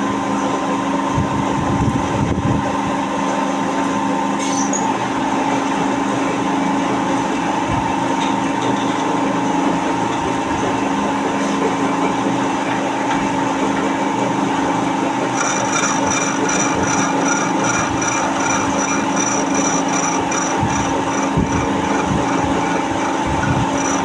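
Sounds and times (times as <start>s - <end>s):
lathe humming: 14.2s - 24.0s
rhythmic scraping: 15.2s - 24.0s.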